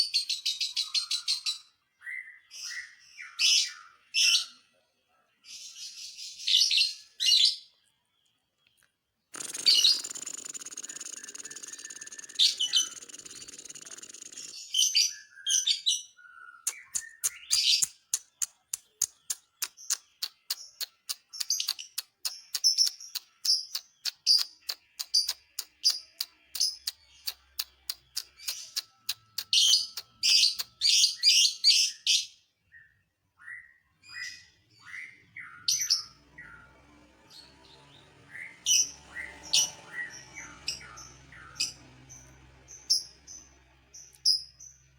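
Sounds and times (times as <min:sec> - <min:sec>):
bird chirping: 0:00.0 - 0:04.8, 0:05.4 - 0:44.9
bird rapid ticking notes: 0:09.4 - 0:14.6, 0:16.7 - 0:31.0.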